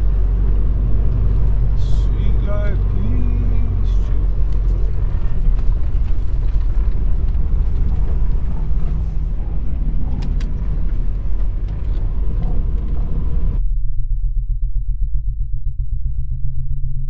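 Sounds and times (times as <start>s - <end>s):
truck diesel engine rumbling: 0.0s - 13.6s
light clicks and rattles: 0.1s - 13.6s.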